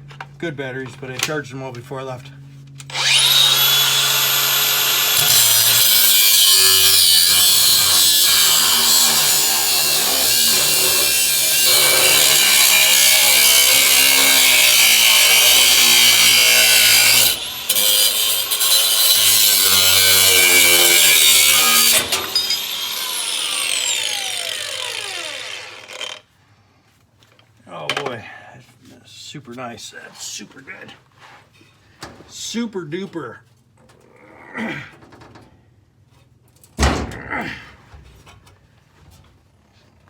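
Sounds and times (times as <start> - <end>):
angle grinder whining on steel: 2.9 - 26.3.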